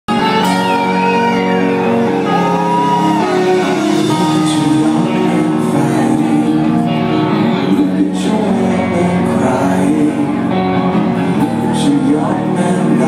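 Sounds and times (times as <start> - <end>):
electric guitar bending notes: 0.1 - 13.0
live rock band: 0.1 - 13.0
crowd shouting: 0.7 - 4.0.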